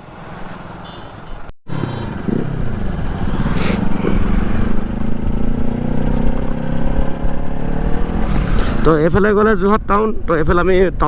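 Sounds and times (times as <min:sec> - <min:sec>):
motorcycle engine running: 0:01.7 - 0:08.4.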